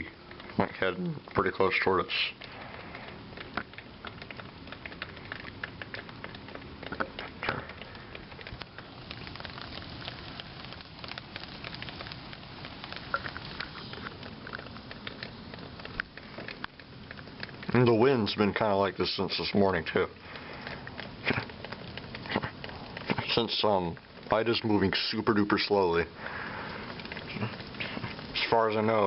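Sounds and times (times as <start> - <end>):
raindrops ticking on surfaces: 0.0 - 29.0
steady rain falling: 0.0 - 29.0.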